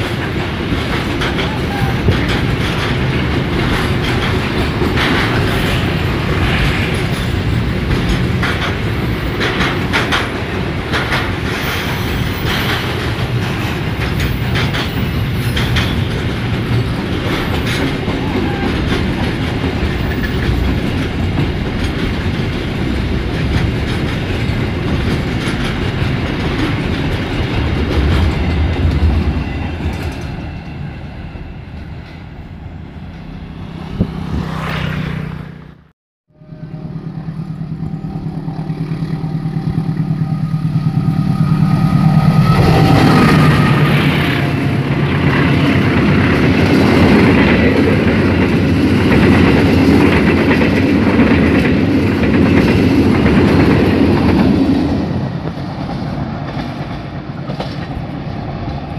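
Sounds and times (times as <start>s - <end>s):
wheels clicking over rail joints: 0.0s - 6.2s, 7.0s - 30.8s, 42.4s - 58.9s
freight wagons rumbling past: 0.0s - 58.9s.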